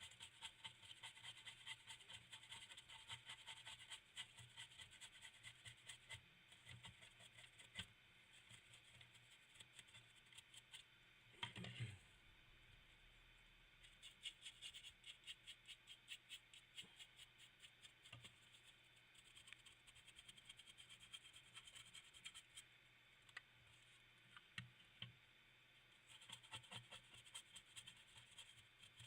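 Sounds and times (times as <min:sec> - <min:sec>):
stiff brush scrubbing plastic: 0:00.0 - 0:10.9.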